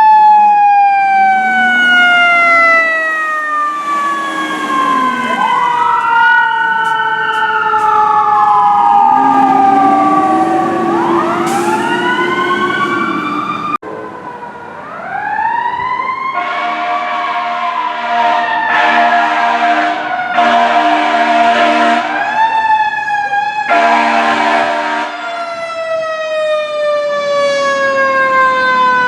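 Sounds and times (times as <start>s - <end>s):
sirens wailing: 0.0s - 29.0s
steady horn blast: 1.0s - 8.1s, 16.4s - 22.2s, 23.7s - 25.2s.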